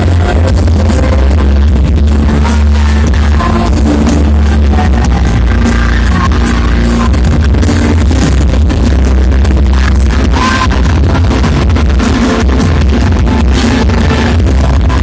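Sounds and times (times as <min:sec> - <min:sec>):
loud electronic music: 0:00.0 - 0:15.0.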